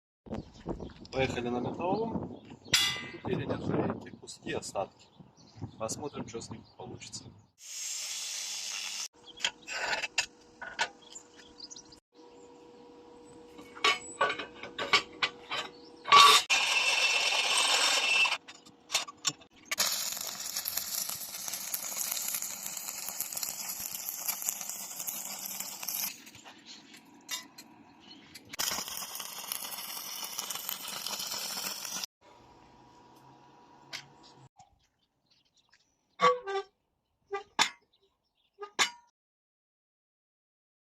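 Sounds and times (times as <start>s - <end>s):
harsh metalworking tool noise: 13.5s - 26.4s.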